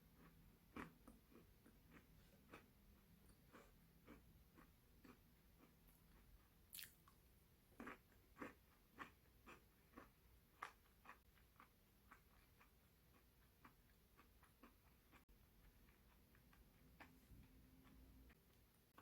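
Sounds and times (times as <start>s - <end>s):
chewing crisp waffle: 0.1s - 19.0s.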